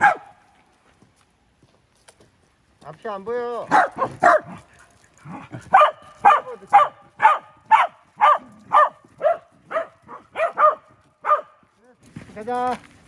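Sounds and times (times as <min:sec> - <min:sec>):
dog barking: 0:00.0 - 0:00.4, 0:03.7 - 0:04.6, 0:05.7 - 0:11.6.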